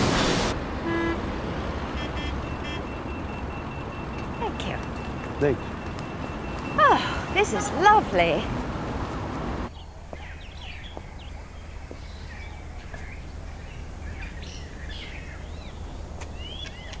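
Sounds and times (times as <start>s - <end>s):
birds chirping and calling: 9.7s - 17.0s.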